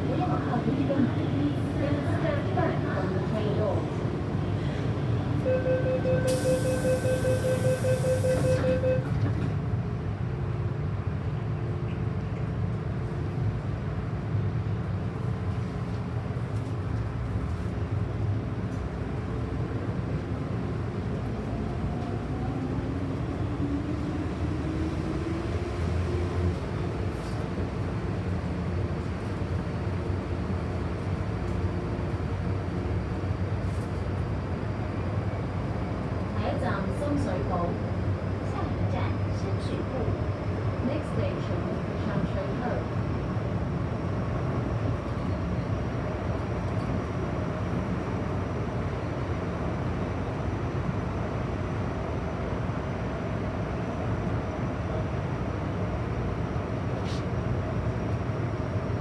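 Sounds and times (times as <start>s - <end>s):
door closing warning beeps: 5.5s - 9.2s.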